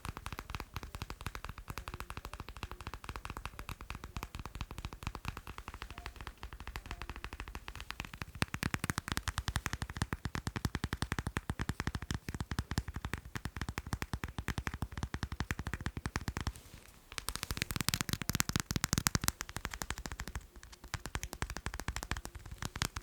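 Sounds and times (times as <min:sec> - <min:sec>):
fast tapping on macarons: 0:00.0 - 0:23.0.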